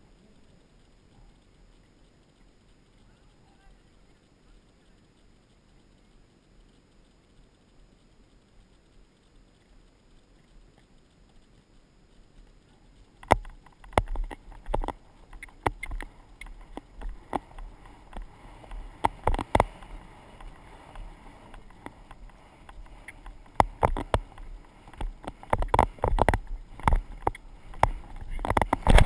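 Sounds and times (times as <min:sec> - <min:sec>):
low rumble of movement: 0:00.0 - 0:29.0
knocks and rattles on camera housing: 0:13.2 - 0:18.3, 0:19.0 - 0:19.7, 0:21.5 - 0:29.0.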